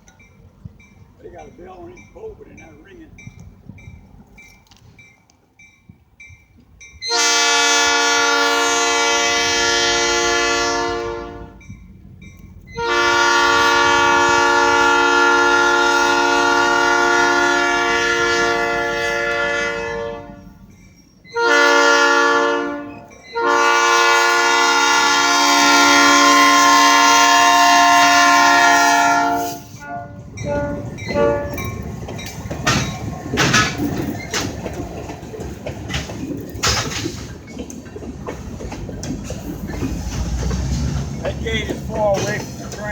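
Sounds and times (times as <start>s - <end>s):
locomotive air horn blasts: 7.0s - 11.7s, 12.7s - 20.6s, 21.3s - 31.7s.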